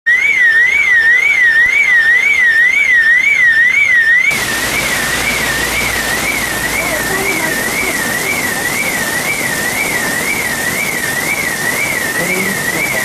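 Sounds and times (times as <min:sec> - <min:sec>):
electronic siren wailing: 0:00.1 - 0:13.0
rush of rain-like noise: 0:04.3 - 0:13.0.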